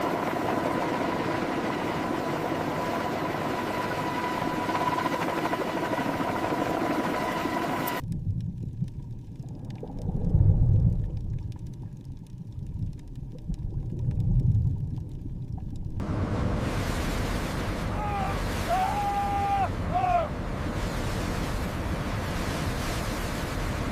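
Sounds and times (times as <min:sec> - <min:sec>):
deep low rumbles: 0:08.0 - 0:17.1
noisy drone with faint tone: 0:14.6 - 0:23.9.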